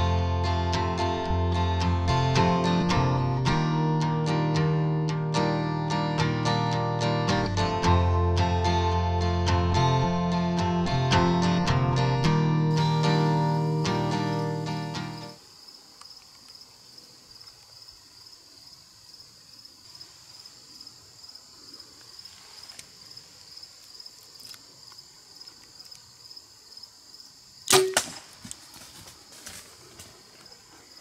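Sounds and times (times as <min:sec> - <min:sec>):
insects chorus pulsing: 0:12.7 - 0:31.0
bow shot crack: 0:27.7 - 0:28.7.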